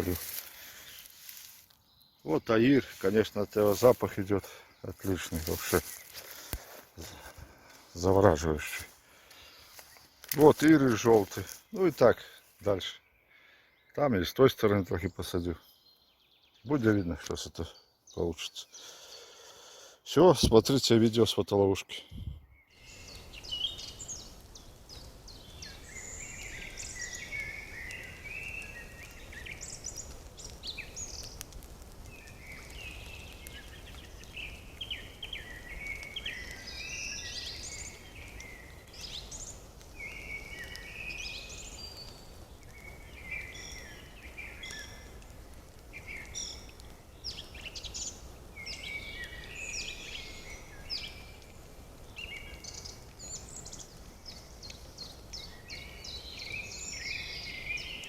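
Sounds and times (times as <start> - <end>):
birds chirping and singing: 21.9 - 58.0.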